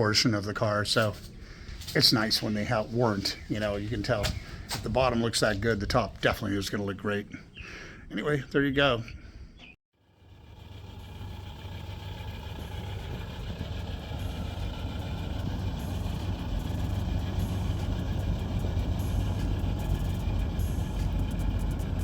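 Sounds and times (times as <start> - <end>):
pickup truck engine running: 10.0 - 22.0.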